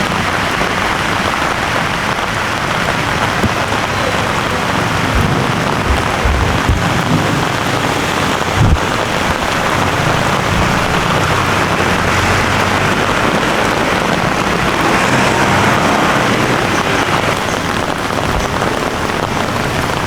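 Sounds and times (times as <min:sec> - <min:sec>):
heavy rain falling: 0:00.0 - 0:20.0
low thump: 0:05.1 - 0:07.5.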